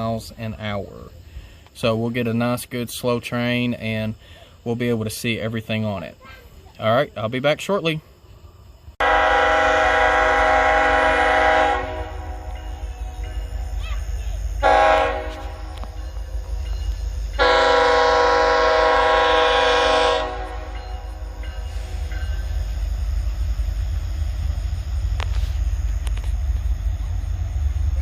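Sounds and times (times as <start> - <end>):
locomotive air horn blasts: 9.0 - 12.6, 14.6 - 16.0, 17.4 - 20.8
steady low rumble: 20.4 - 28.0.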